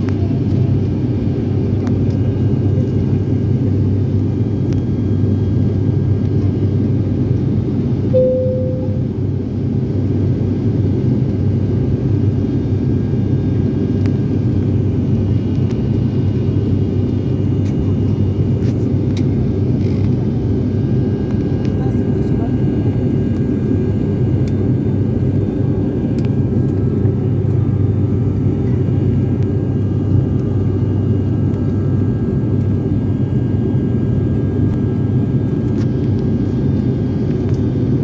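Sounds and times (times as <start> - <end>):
airliner cabin engine drone: 0.0 - 38.0
brief steady tone: 8.1 - 9.2.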